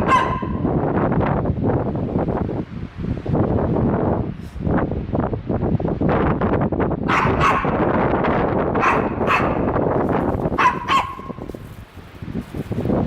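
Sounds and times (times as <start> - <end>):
dog barking: 0.0 - 0.7, 7.1 - 7.9, 8.8 - 11.5
wind noise on microphone: 0.0 - 13.0.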